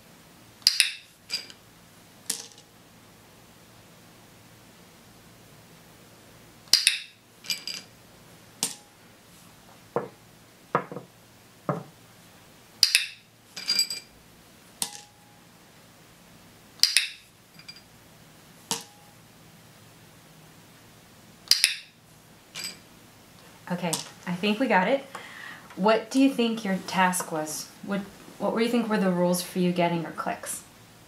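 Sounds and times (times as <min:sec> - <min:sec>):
toy pieces clinking on tabletop: 0:06.7 - 0:07.9, 0:12.8 - 0:14.1, 0:16.8 - 0:17.8.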